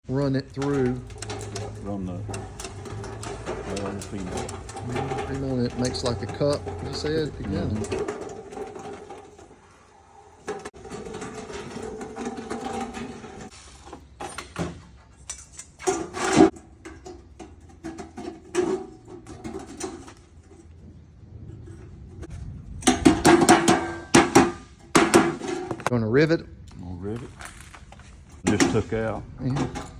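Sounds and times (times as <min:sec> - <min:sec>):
metal clanks and taps: 0:00.4 - 0:09.4, 0:14.2 - 0:20.8.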